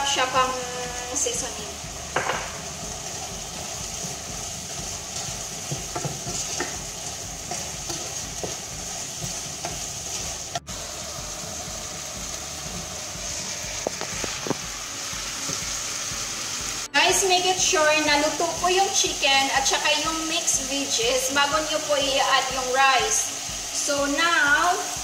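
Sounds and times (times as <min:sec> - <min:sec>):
chicken and vegetables sizzling: 0:00.0 - 0:25.0
wooden spoon knocking on pot: 0:02.1 - 0:02.6, 0:05.6 - 0:09.8.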